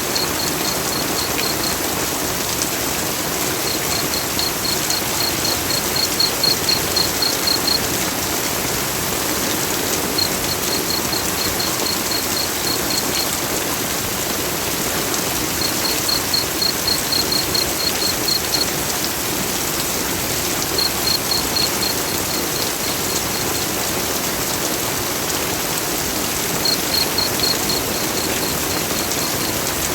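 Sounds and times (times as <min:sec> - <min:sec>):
heavy rain falling: 0:00.0 - 0:29.9
rapid high chirps: 0:03.7 - 0:07.8.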